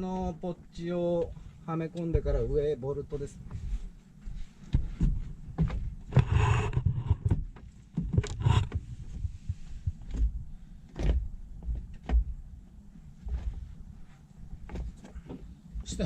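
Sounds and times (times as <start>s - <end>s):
knocks and clunks: 4.7s - 12.4s.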